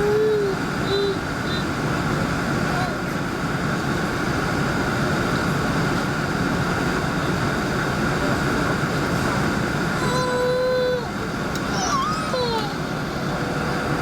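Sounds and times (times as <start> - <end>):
airliner cabin hiss and rumble: 0.0 - 14.0.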